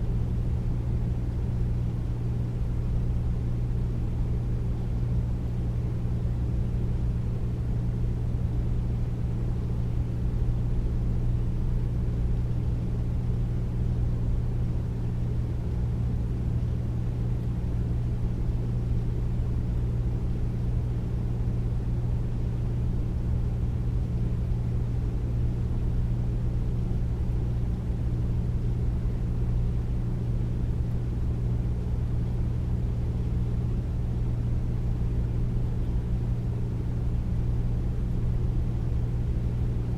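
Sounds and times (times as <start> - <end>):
air conditioner humming: 0.0 - 39.9.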